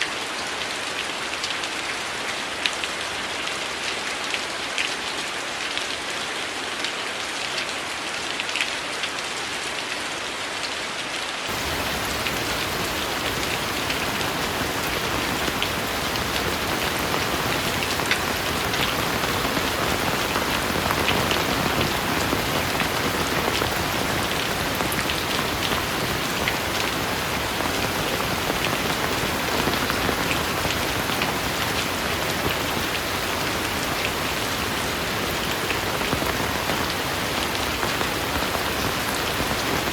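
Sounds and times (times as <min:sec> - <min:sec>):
heavy rain falling: 0:00.0 - 0:39.9
close raindrops: 0:11.4 - 0:39.9.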